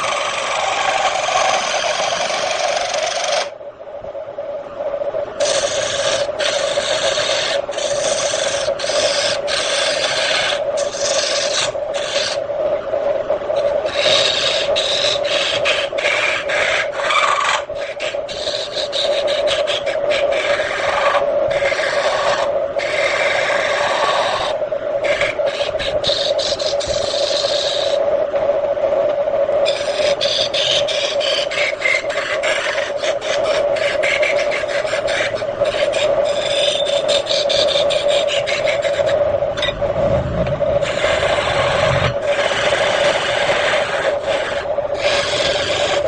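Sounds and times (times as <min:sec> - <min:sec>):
turning tool scraping wood: 0:00.0 - 0:03.5, 0:05.4 - 0:12.4, 0:13.6 - 0:28.0, 0:29.6 - 0:39.8, 0:40.8 - 0:46.0
wood lathe humming: 0:00.0 - 0:03.6, 0:05.4 - 0:12.4, 0:13.6 - 0:28.0, 0:29.6 - 0:40.0, 0:40.7 - 0:46.0.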